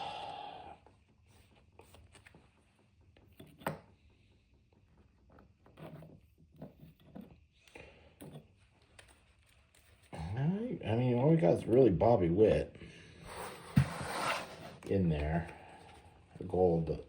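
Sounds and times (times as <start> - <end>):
trading cards handled and shuffled: 1.3 - 10.3.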